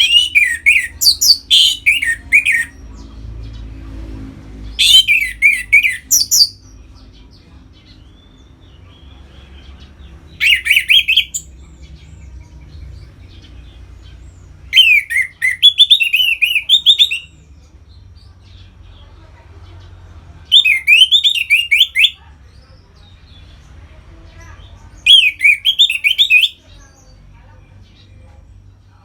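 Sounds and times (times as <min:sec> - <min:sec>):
thrush singing: 0:00.0 - 0:06.6.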